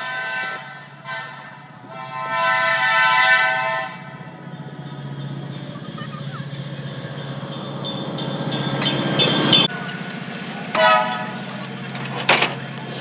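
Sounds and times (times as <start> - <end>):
locomotive horn blast: 0.0 - 4.5, 9.2 - 12.8
diesel train engine rumble: 0.0 - 13.0.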